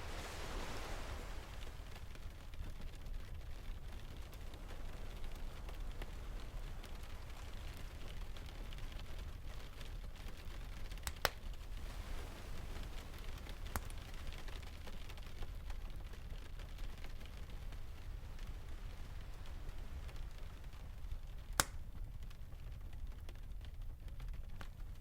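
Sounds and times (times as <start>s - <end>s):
distant ocean waves: 0.0s - 8.4s, 10.2s - 15.3s
rain: 0.0s - 25.0s
wood fire crackling: 0.0s - 25.0s.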